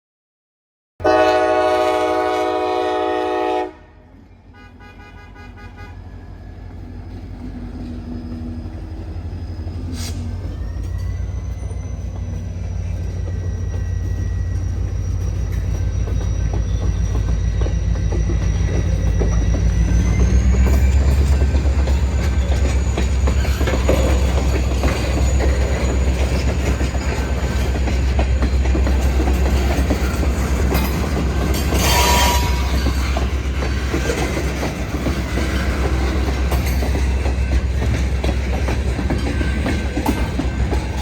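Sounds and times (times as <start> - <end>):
train horn blast: 1.0 - 6.2, 31.7 - 32.9
train rumble: 1.0 - 41.0.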